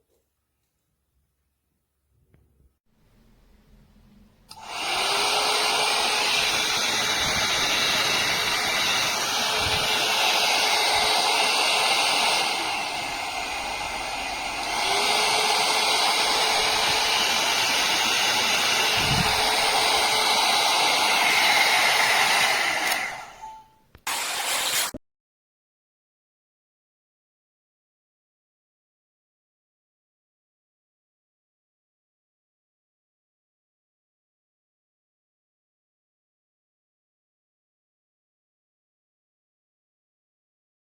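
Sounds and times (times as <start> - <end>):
hair dryer blowing: 4.5 - 25.0.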